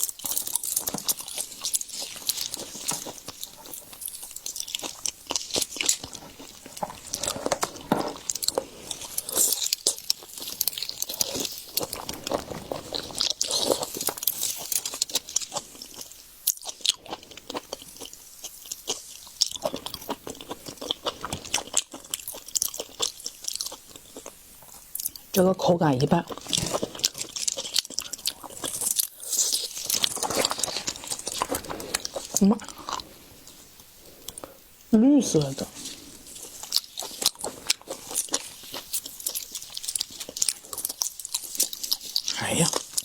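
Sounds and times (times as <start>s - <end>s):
wet chewing: 0.0s - 43.0s
sharp crunches and crackles: 26.2s - 33.1s.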